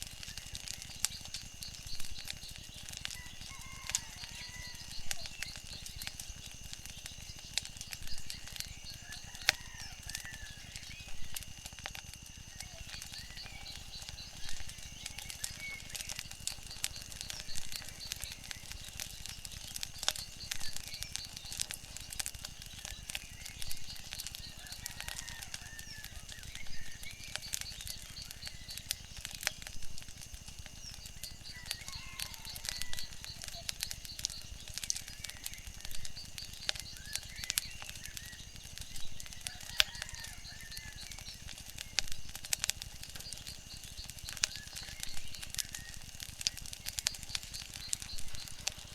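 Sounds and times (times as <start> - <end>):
wood fire crackling: 0.0 - 48.9
chirping bird calls: 0.1 - 11.4, 12.5 - 29.7, 30.7 - 48.9.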